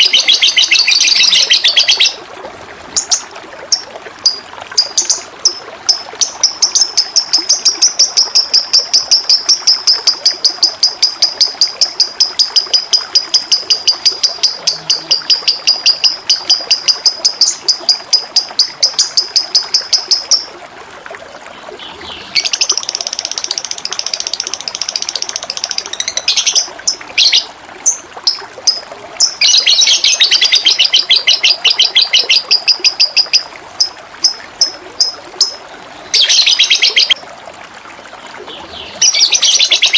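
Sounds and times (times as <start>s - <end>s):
songbird fast high chirps: 0.0s - 2.2s, 36.2s - 37.2s
trickling water: 0.0s - 39.9s.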